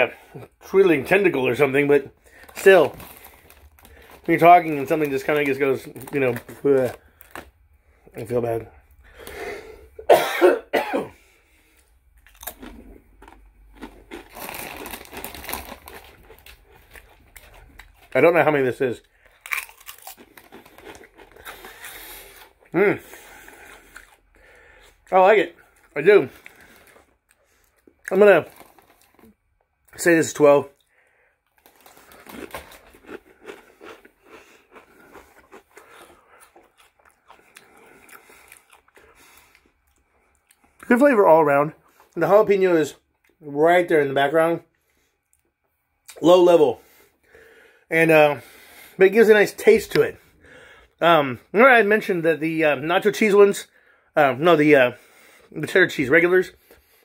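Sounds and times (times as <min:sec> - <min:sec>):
crunching chips: 0:00.7 - 0:07.5, 0:11.8 - 0:40.7
man coughing: 0:10.0 - 0:11.2.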